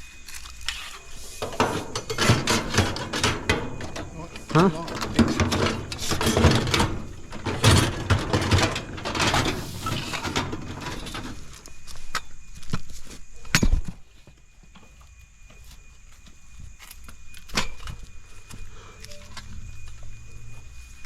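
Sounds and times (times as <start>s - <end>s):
scrap metal clanking and rattling: 0.7s - 11.7s.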